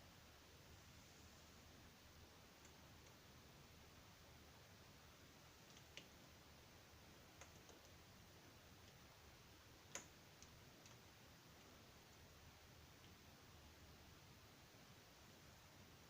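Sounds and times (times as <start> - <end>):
faint light clicks and taps: 2.6 - 3.2, 5.6 - 6.2, 7.3 - 8.0, 9.8 - 12.2.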